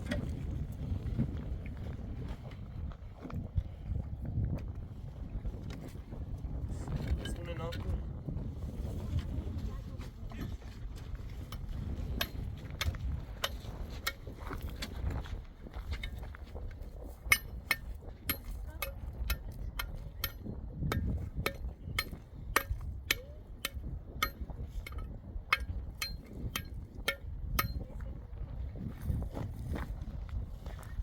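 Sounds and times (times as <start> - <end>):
metal tool tapping hard surface: 11.5 - 14.2, 17.2 - 27.9.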